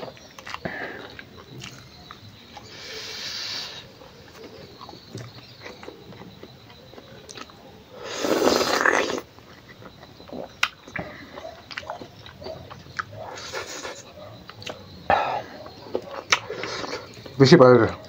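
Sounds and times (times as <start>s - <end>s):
person chewing and lip-smacking: 0.0s - 2.7s, 4.3s - 7.6s, 8.3s - 14.9s, 15.7s - 17.3s
loud breathy rush: 2.7s - 3.9s.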